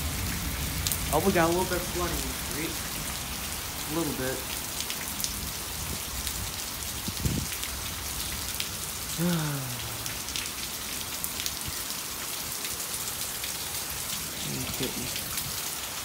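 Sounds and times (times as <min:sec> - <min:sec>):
rain falling: 0:00.0 - 0:16.0
low voice sound: 0:09.2 - 0:10.0, 0:14.4 - 0:15.2.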